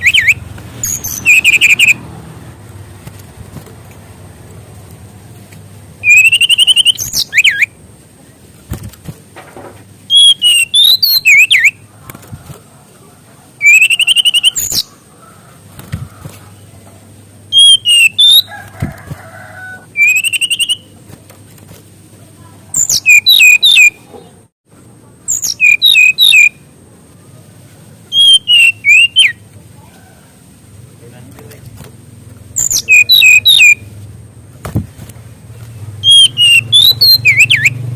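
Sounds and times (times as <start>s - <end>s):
bird singing whistled notes: 0.0s - 2.0s, 6.0s - 7.8s, 10.1s - 11.8s, 13.6s - 14.9s, 17.5s - 18.5s, 19.9s - 20.9s, 22.8s - 24.0s, 25.3s - 26.6s, 28.1s - 29.4s, 32.6s - 33.9s, 36.0s - 37.9s.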